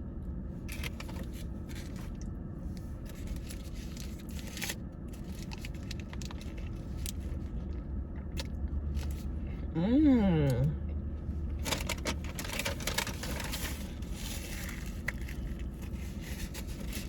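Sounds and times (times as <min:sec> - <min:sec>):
food packaging crinkling and tearing: 0:00.6 - 0:02.3, 0:02.9 - 0:07.8, 0:11.6 - 0:17.0.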